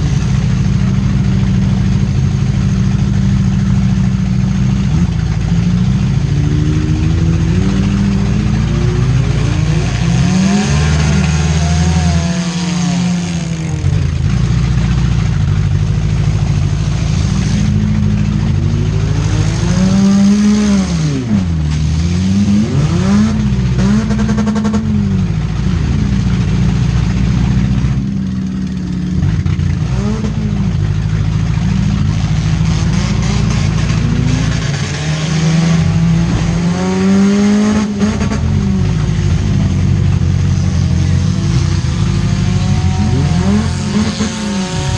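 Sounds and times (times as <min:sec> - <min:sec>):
steady low rumble: 0:00.0 - 0:12.2, 0:13.0 - 0:24.0
car engines revving hard: 0:00.0 - 0:44.9.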